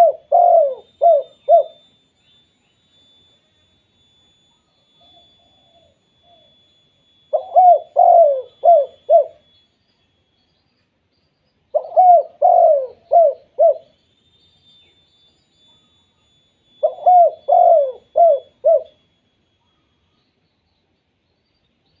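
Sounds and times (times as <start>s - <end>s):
dove cooing: 0.0s - 1.8s, 5.0s - 6.5s, 7.3s - 9.4s, 11.7s - 14.0s, 16.8s - 19.0s.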